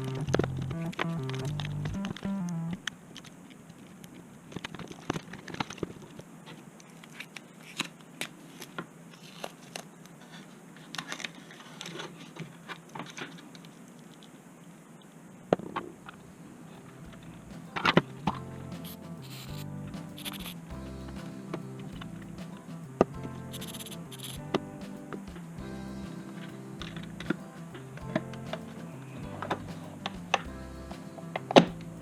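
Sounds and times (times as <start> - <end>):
crinkling: 0.0 - 14.4.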